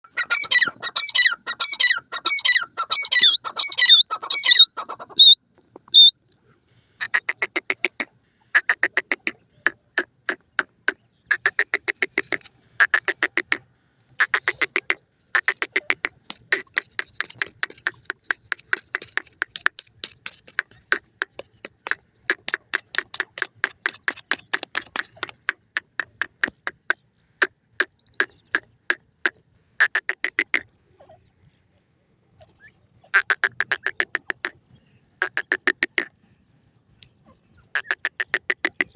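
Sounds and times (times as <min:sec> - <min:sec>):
rapid clucking notes: 0:07.0 - 0:13.6, 0:14.2 - 0:30.7, 0:33.1 - 0:34.6, 0:35.2 - 0:36.2, 0:37.8 - 0:38.9.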